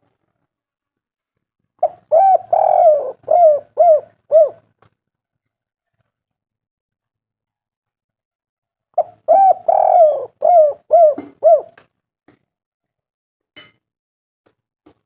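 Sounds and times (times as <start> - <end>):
dove cooing: 1.8 - 4.7, 9.0 - 11.8.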